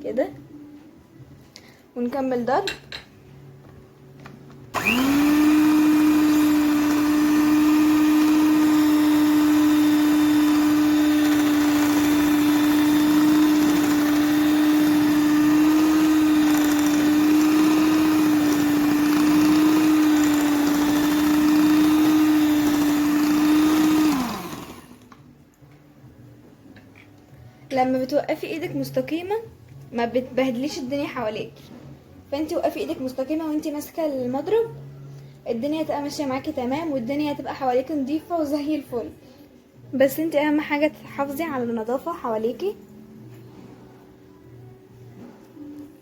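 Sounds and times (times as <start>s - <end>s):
electric hand mixer whine: 4.7s - 25.1s.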